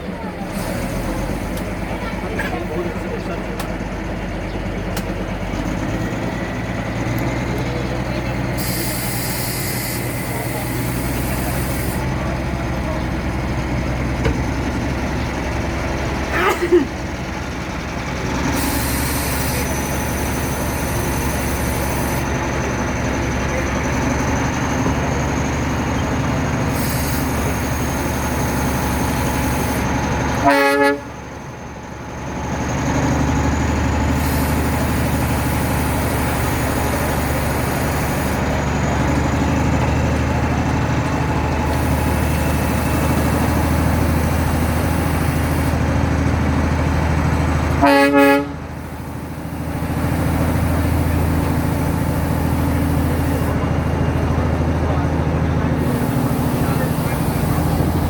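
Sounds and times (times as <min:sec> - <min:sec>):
toy train rumbling: 0:00.0 - 0:58.0
train horn toot: 0:30.4 - 0:31.2, 0:47.8 - 0:48.7.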